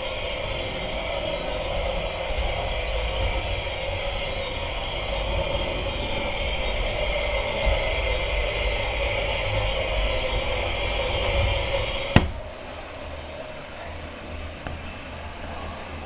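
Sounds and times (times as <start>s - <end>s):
model train motor whine: 0.0s - 12.7s.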